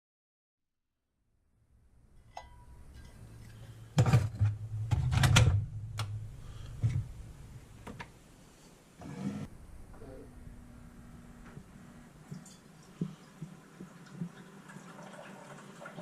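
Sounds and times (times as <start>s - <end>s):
low steady hum: 1.8s - 14.2s
knocks and rattles: 4.0s - 7.2s.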